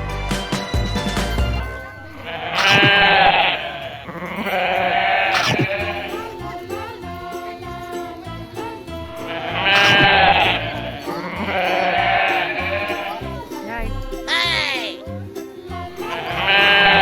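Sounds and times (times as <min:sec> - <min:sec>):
background music: 0:00.0 - 0:17.0
animal bleating: 0:02.1 - 0:06.8, 0:09.2 - 0:15.0, 0:16.0 - 0:17.0.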